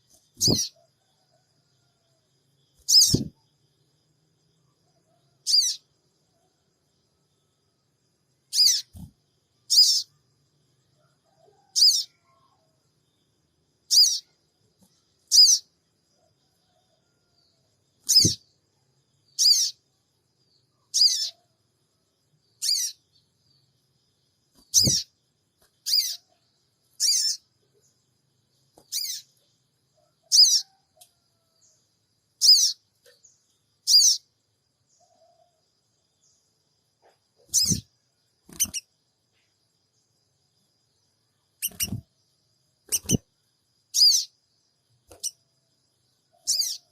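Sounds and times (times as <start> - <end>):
bird giving sharp high calls: 0.4 - 0.8, 2.8 - 3.3, 8.5 - 9.0, 18.1 - 18.4, 21.0 - 21.4, 24.7 - 25.1, 37.5 - 37.8, 41.6 - 42.0, 42.9 - 43.2.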